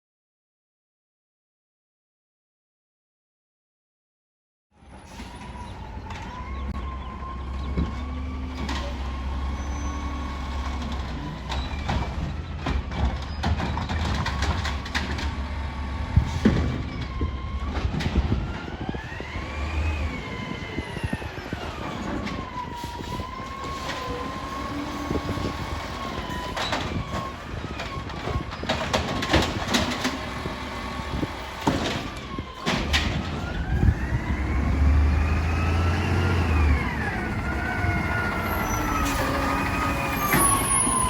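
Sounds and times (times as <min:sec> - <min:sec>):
garbage truck diesel engine running: 0:22.7 - 0:41.0.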